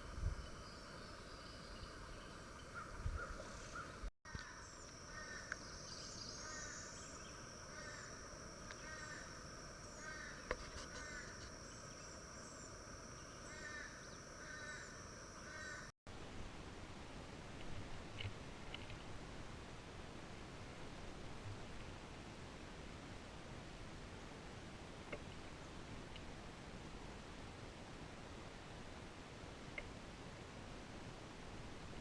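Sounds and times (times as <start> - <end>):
bird calling: 0.0 - 15.9
high-pitched insect drone: 4.4 - 15.9.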